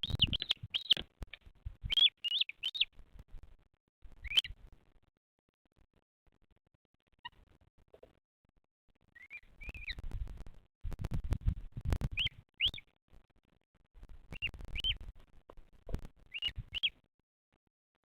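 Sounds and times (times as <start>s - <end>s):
bird chirping: 0.0s - 2.9s, 4.2s - 4.6s, 9.2s - 10.1s, 12.1s - 12.9s, 14.3s - 15.1s, 16.2s - 17.0s.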